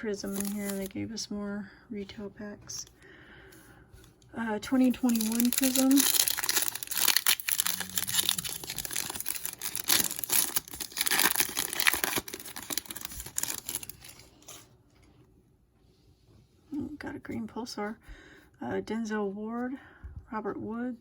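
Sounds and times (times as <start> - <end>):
foil wrapper tearing and crinkling: 0.2 - 0.9, 4.9 - 14.6.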